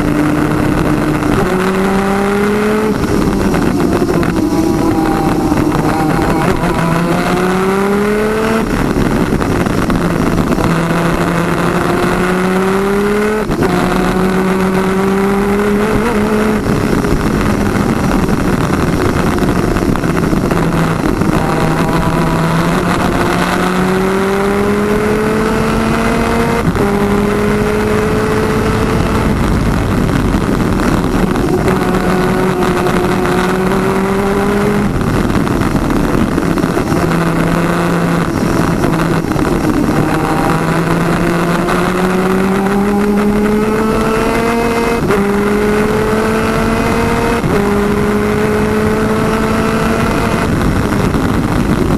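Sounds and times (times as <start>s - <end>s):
kart engines revving: 0.0s - 12.6s
dense rushing noise: 0.0s - 51.9s.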